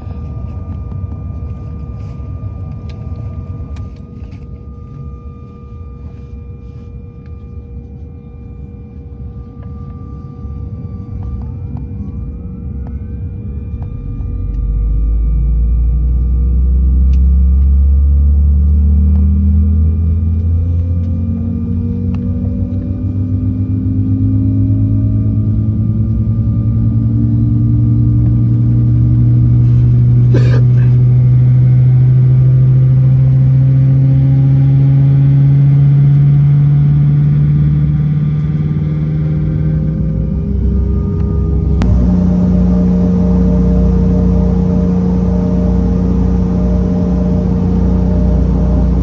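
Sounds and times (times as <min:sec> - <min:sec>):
jet engines spooling up: 0:26.5 - 0:49.0.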